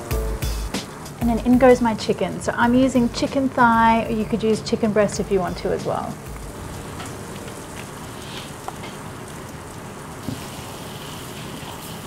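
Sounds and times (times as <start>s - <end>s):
frying crackles: 0.0s - 12.0s
chicken sizzling in a pan: 6.5s - 12.0s.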